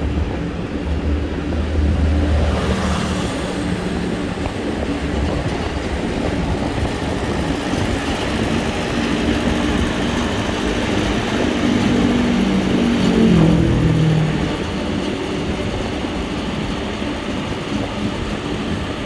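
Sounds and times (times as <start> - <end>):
vehicle passing close: 0.0 - 6.0, 8.2 - 16.5
road noise: 0.0 - 19.0
vehicle engine hum: 0.0 - 19.0
wind: 0.0 - 19.0.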